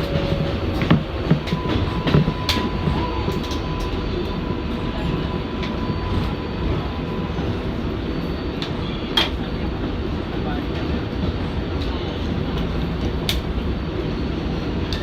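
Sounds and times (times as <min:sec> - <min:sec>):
subway car rumbling: 0:00.0 - 0:15.0.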